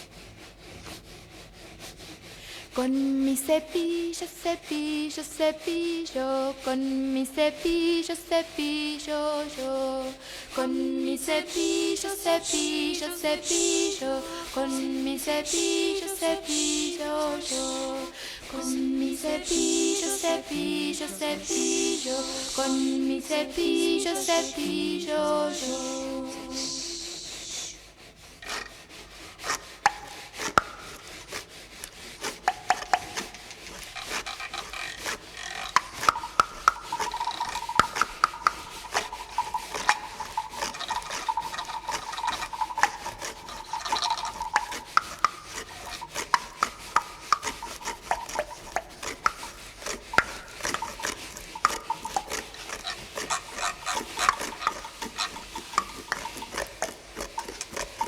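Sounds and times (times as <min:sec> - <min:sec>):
hand plane shaving wood: 0:00.0 - 0:58.0
sharp wooden clicks and knocks: 0:29.4 - 0:58.0.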